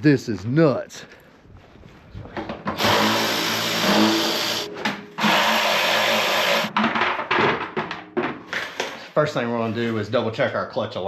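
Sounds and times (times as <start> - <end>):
handheld power tool running: 2.8 - 6.7.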